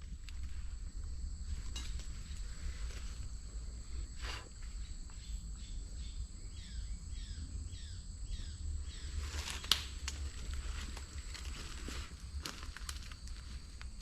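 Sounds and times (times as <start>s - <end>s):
high-pitched insect drone: 0.0s - 9.6s.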